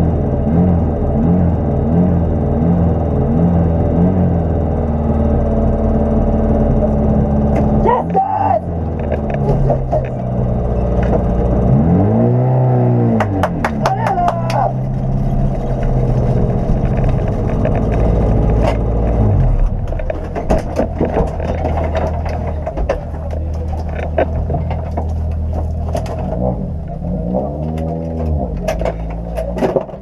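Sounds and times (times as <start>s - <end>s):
car engine idling: 0.0s - 30.0s
clicks and knocks in cabin: 19.8s - 26.2s.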